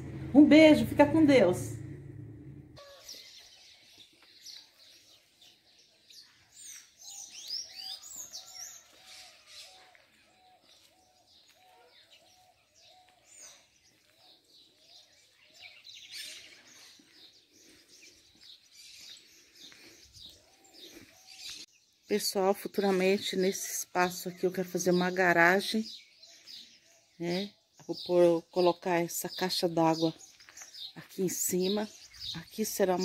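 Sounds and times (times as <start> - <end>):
birds chirping and whistling: 1.8 - 22.0, 29.9 - 33.0.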